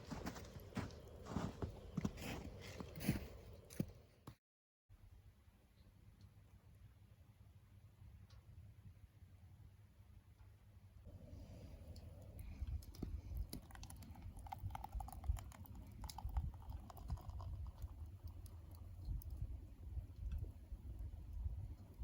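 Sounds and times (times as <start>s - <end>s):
low rumble of wood stove: 0.0s - 4.0s, 10.3s - 22.0s
burning wood crackling and popping: 11.9s - 19.5s.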